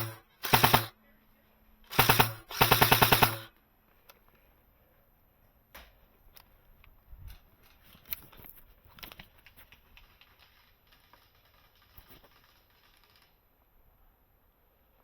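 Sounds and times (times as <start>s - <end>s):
airsoft gun full-auto bursts: 0.0s - 1.0s, 1.9s - 3.5s, 10.4s - 13.4s.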